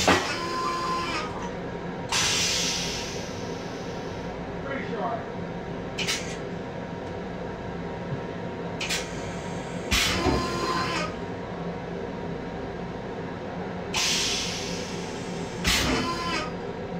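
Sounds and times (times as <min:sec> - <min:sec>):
train running hum: 0:00.0 - 0:16.9
hiss: 0:02.1 - 0:04.1, 0:14.0 - 0:16.1.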